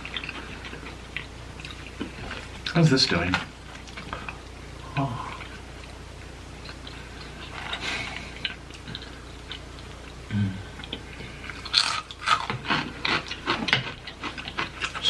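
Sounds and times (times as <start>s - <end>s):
person chewing food: 0.0s - 2.8s, 3.6s - 15.0s
crunching bites: 10.9s - 15.0s.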